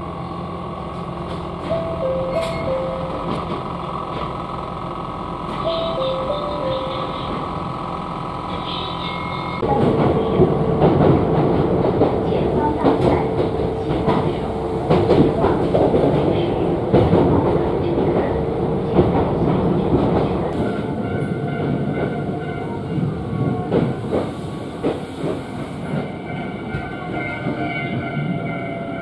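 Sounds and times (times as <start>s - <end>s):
steady whine: 0.0s - 20.9s
train running noise: 0.0s - 29.0s
wheels clacking over rail joints: 0.9s - 4.4s, 9.6s - 28.1s.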